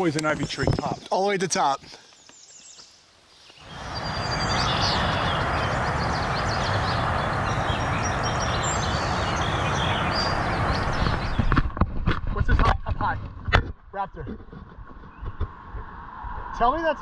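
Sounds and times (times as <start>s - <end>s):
small birds chirping: 1.9s - 11.6s
steady rushing noise: 3.6s - 11.6s.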